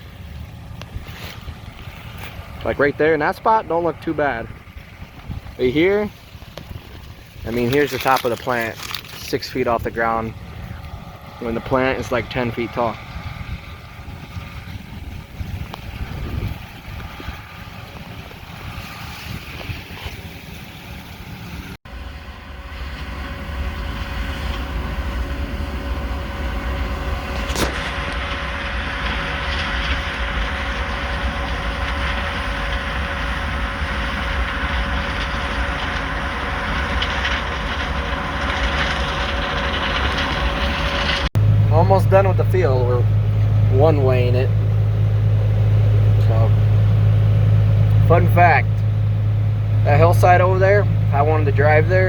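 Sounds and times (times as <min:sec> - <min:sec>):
combine harvester drone: 0:00.0 - 0:52.0.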